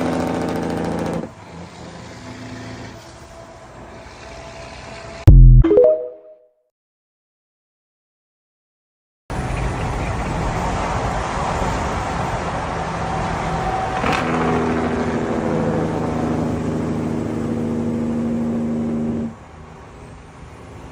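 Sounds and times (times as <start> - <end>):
diesel truck engine drone: 9.4 - 20.9.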